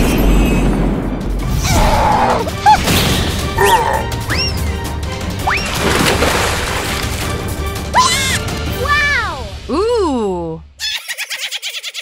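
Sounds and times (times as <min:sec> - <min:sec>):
dramatic background music: 0:00.0 - 0:10.8.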